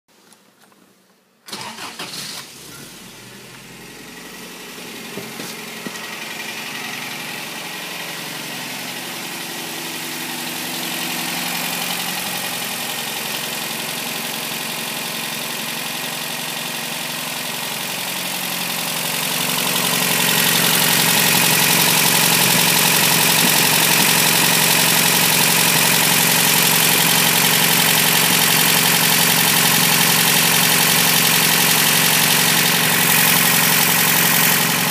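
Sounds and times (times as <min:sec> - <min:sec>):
engine starting and idling: 0:01.5 - 0:34.9.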